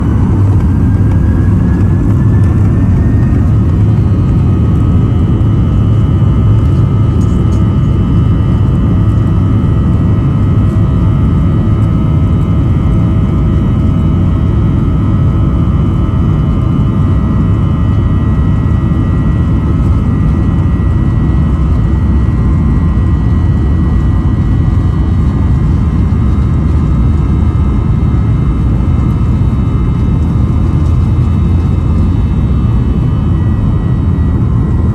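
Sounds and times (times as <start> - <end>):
jet engine whine: 0.0 - 34.9
jet engines rumbling: 0.0 - 34.9.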